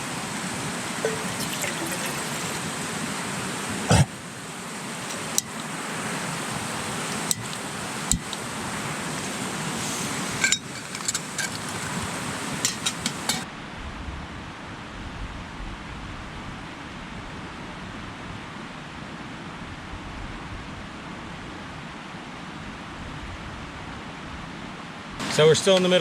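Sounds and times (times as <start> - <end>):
camp gear clinking: 1.0 - 2.7, 7.1 - 13.5.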